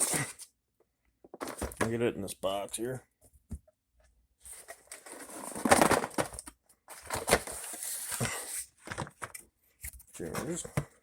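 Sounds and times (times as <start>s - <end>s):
rummaging in cardboard box: 1.3s - 1.9s, 4.5s - 9.3s.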